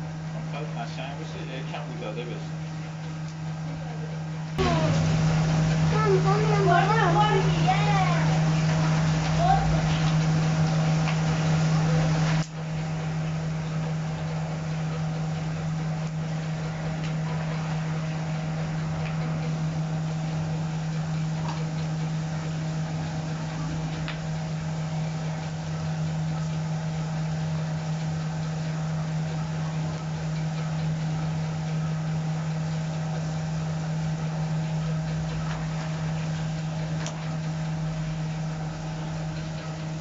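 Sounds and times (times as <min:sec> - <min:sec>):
low machine hum: 0:00.0 - 0:40.0
loud noise layer: 0:04.6 - 0:08.5.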